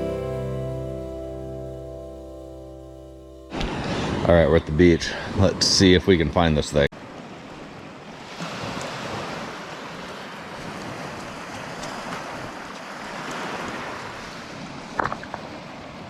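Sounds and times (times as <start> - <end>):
small waves washing ashore: 3.5 - 16.0.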